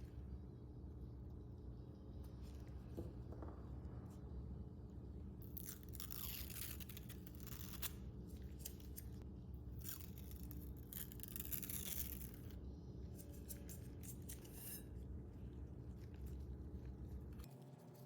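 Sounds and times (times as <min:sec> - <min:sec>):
steady low hum: 0:00.0 - 0:18.0
scraping strokes: 0:13.1 - 0:15.2.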